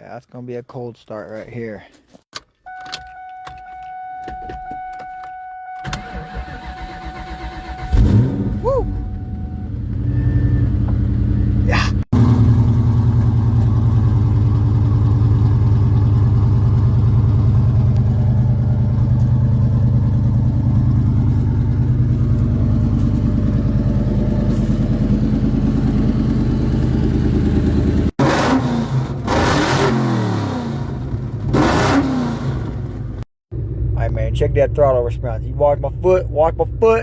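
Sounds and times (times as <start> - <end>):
engine throttle blips: 2.7 - 37.0
car engine idling: 8.8 - 28.1.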